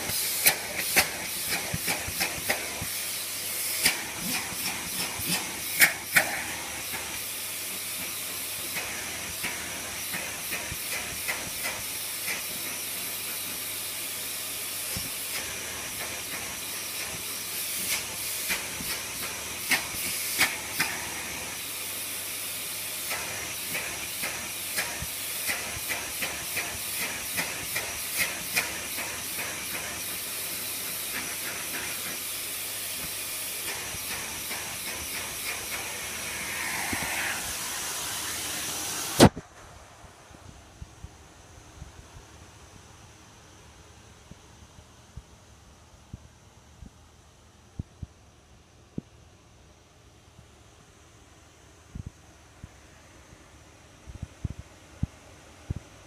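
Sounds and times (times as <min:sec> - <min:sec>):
vacuum cleaner suction hiss: 0:00.0 - 0:44.7.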